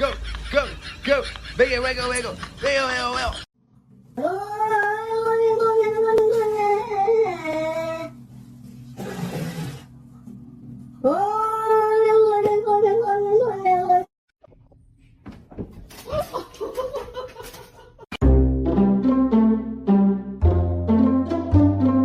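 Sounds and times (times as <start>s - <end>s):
music: 18.2s - 22.0s.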